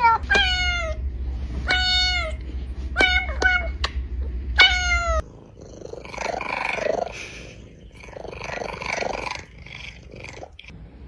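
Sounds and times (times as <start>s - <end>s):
cat meowing: 0.0s - 1.0s, 1.6s - 4.0s, 4.6s - 5.3s
cat purring: 0.0s - 10.8s.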